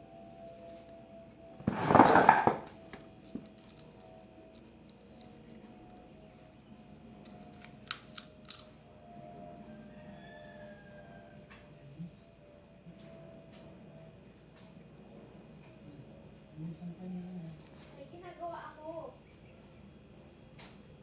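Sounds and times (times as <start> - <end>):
scraping rustle: 1.6 - 2.8.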